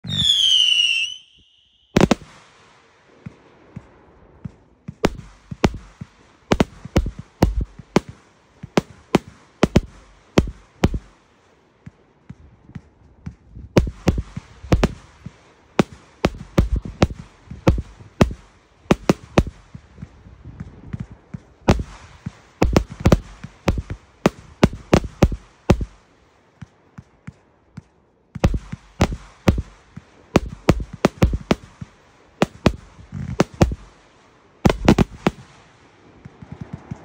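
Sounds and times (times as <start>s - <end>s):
firework whistle: 0.0s - 2.5s
fireworks bangs: 0.0s - 37.0s.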